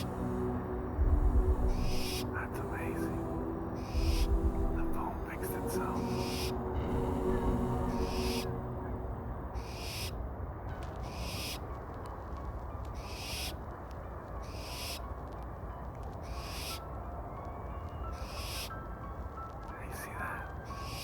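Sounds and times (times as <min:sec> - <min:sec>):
steady low rumble: 0:00.0 - 0:14.2
owl screeching: 0:09.6 - 0:10.2, 0:11.0 - 0:11.6, 0:13.0 - 0:13.5, 0:14.4 - 0:15.0, 0:16.2 - 0:16.8, 0:18.2 - 0:18.7.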